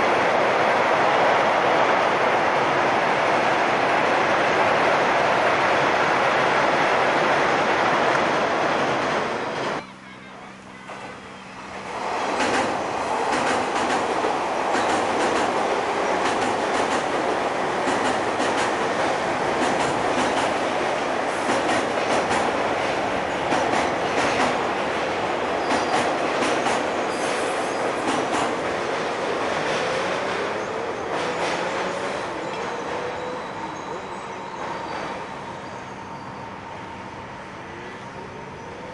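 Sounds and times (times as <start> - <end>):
train rumbling over bridge: 0.0 - 38.9
wheels clicking over rail joints: 12.4 - 24.8.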